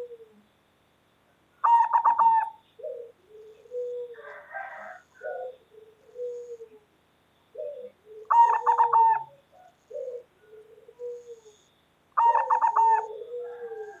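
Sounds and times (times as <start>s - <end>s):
dove cooing: 0.0s - 0.4s, 1.6s - 6.9s, 7.5s - 14.0s.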